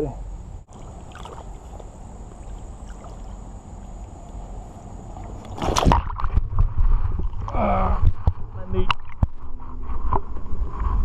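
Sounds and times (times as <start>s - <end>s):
creek water rumbling: 0.6s - 10.3s
wading in water: 0.7s - 10.2s
splash and knock on rocks: 5.4s - 9.5s.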